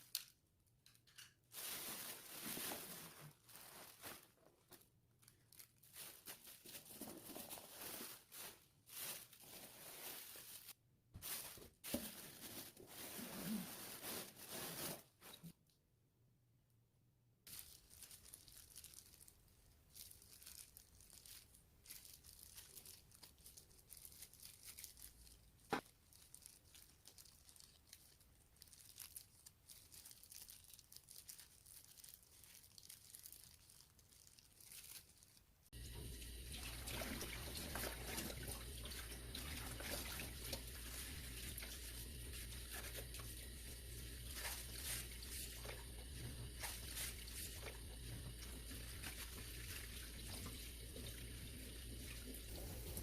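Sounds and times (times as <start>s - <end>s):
rustling and crinkling: 0.0s - 15.7s, 17.5s - 35.9s, 36.9s - 51.3s
water running: 35.8s - 53.0s.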